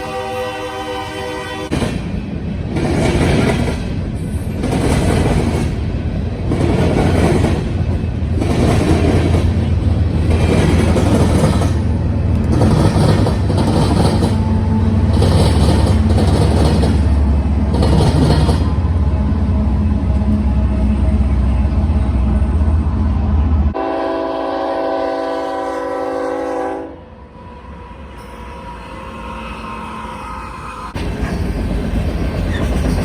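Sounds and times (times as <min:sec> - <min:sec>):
locomotive horn: 0:00.0 - 0:01.8, 0:14.2 - 0:16.3, 0:23.7 - 0:27.5
rail cars clattering: 0:00.0 - 0:33.0
train rumble: 0:00.0 - 0:33.0.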